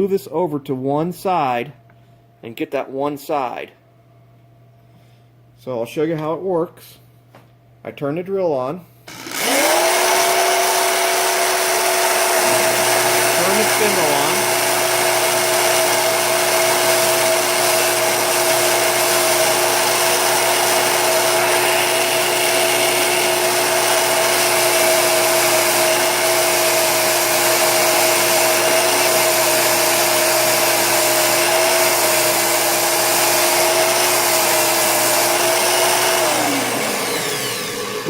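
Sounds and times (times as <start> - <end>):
electric drill motor whine: 9.1 - 38.0.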